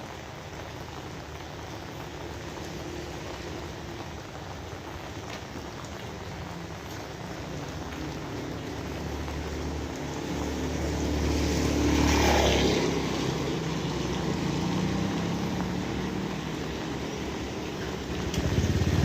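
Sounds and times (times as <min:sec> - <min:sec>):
steady rain: 0:00.0 - 0:19.0
vehicle passing by: 0:07.6 - 0:19.0.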